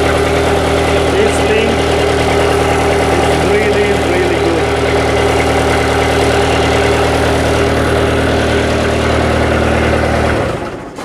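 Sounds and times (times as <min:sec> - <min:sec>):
diesel tractor engine idling: 0:00.0 - 0:11.0.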